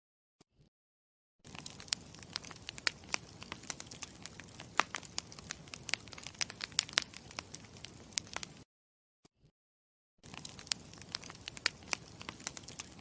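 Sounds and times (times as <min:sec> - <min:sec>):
campfire pops and snaps: 0:01.5 - 0:08.6, 0:10.2 - 0:13.0
soft steady hiss: 0:01.5 - 0:08.6, 0:10.3 - 0:13.0.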